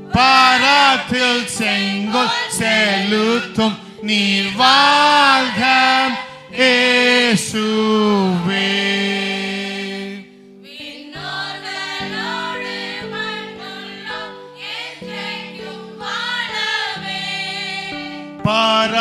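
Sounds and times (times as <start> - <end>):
choir singing: 0.0 - 19.0
sustained keyboard chords: 0.0 - 19.0.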